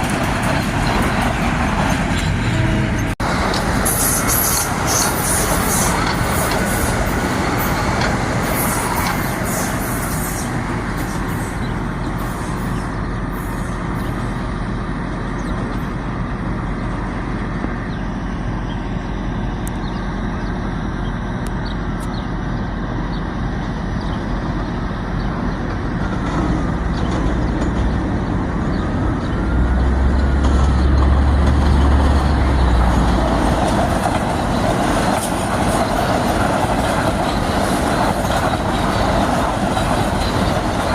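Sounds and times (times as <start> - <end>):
train rumbling by: 0.0 - 40.9.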